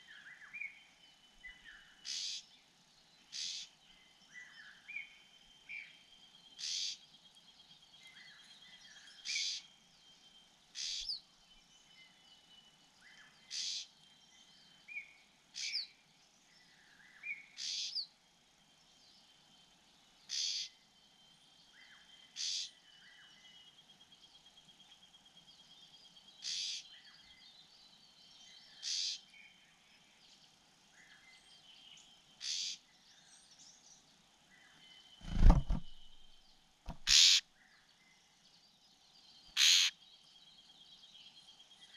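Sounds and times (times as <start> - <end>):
short sharp bird calls: 2.0 - 2.4, 3.3 - 3.7, 6.6 - 7.0, 9.2 - 9.6, 10.8 - 11.2, 13.5 - 13.9, 17.6 - 18.0, 20.3 - 20.7, 22.4 - 22.7, 26.4 - 26.8, 28.8 - 29.2, 32.4 - 32.8, 35.2 - 37.4, 39.6 - 40.0.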